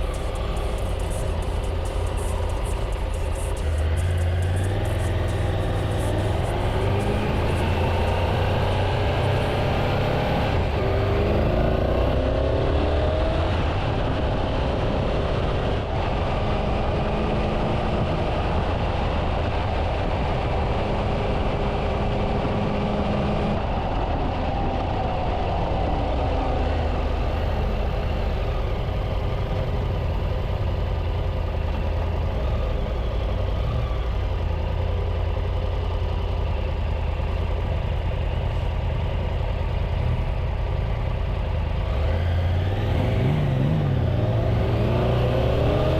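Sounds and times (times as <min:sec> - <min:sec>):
deep rumble: 0:00.0 - 0:12.8
motorcycle engine running: 0:00.0 - 0:45.9.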